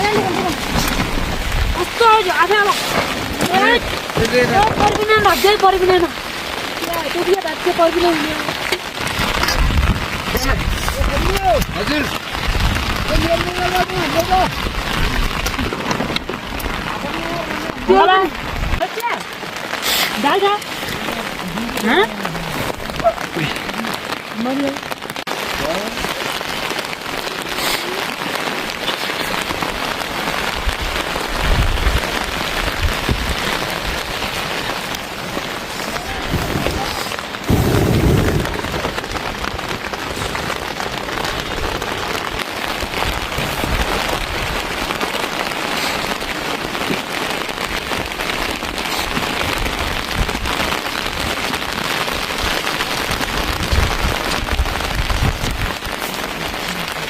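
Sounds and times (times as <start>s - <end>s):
rain pattering: 0.0s - 57.0s
low surges: 35.6s - 40.6s.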